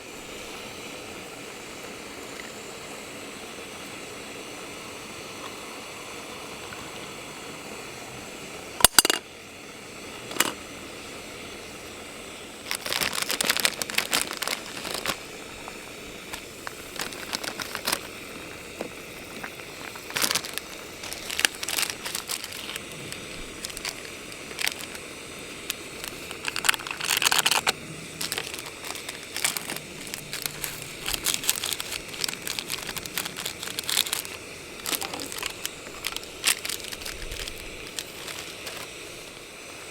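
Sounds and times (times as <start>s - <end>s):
steady hiss: 0.0s - 39.9s
plastic packaging crinkling: 12.6s - 39.5s.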